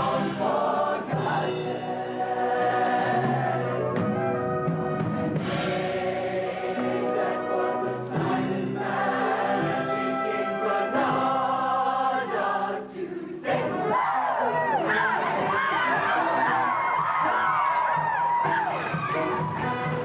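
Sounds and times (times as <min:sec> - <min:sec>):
choir singing in harmony: 0:00.0 - 0:20.0
live band playing: 0:01.1 - 0:08.8, 0:14.7 - 0:20.0.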